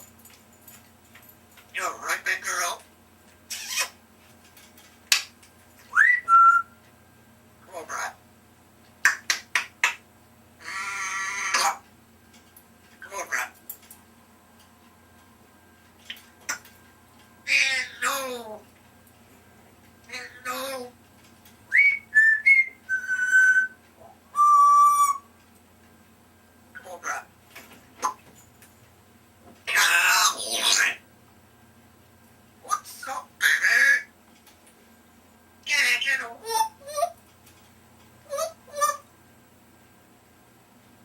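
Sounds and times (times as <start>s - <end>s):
parrot whistling: 5.9s - 6.8s, 21.7s - 25.3s.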